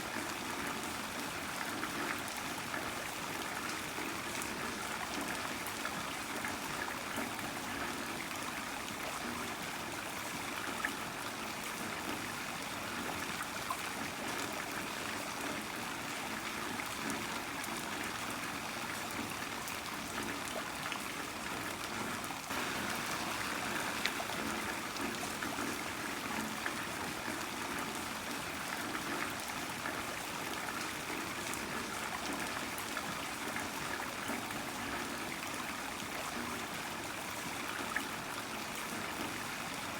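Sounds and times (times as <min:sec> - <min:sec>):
heavy rain falling: 0:22.5 - 0:28.1.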